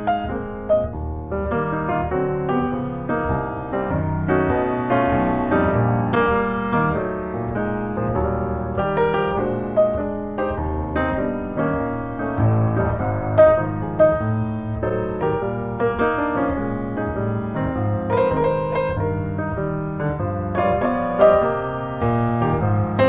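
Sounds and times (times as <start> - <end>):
piano playing flowing melody: 0.0 - 23.0.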